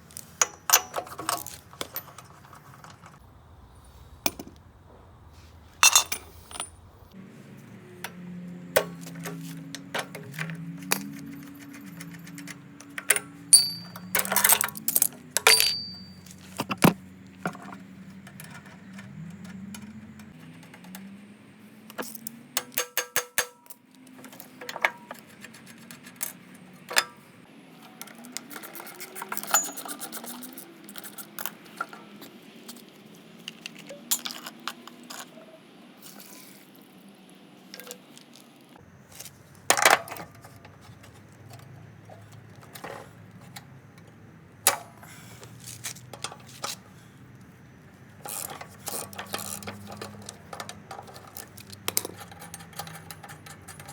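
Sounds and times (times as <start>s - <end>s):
metal parts clinking: 0.2s - 3.2s, 5.8s - 6.9s, 8.8s - 20.3s, 27.9s - 32.9s, 48.2s - 53.9s.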